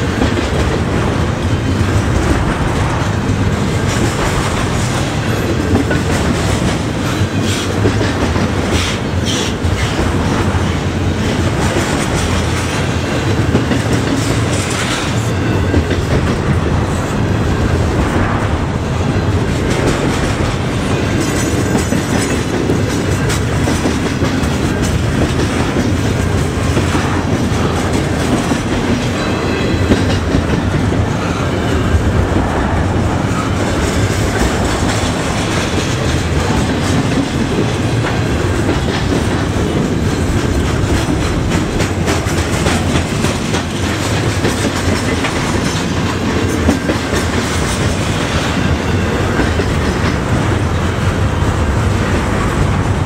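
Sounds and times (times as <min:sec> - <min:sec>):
train cars rumbling: 0:00.0 - 0:53.0
wheels clicking over rail joints: 0:33.4 - 0:53.0.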